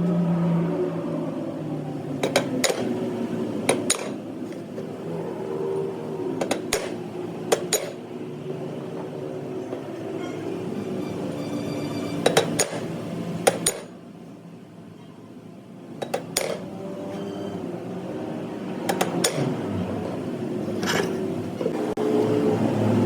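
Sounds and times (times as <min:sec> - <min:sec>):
steady machine hum: 0:00.0 - 0:16.4.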